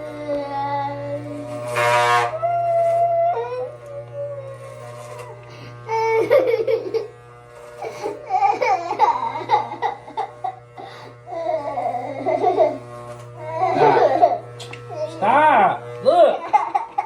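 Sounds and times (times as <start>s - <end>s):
child wailing: 0.0s - 1.6s, 2.3s - 6.7s, 7.8s - 10.6s, 11.3s - 12.8s, 13.4s - 15.3s
electric hair clippers humming: 0.0s - 17.0s.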